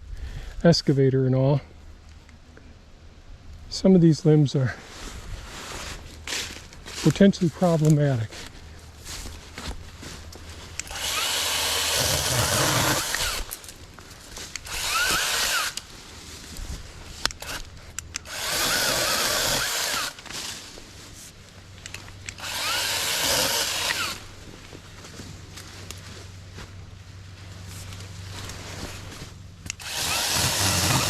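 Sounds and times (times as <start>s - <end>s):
mini chainsaw cutting limbs: 10.7s - 13.8s, 14.4s - 15.9s, 17.2s - 20.5s, 21.9s - 24.3s, 29.7s - 31.0s.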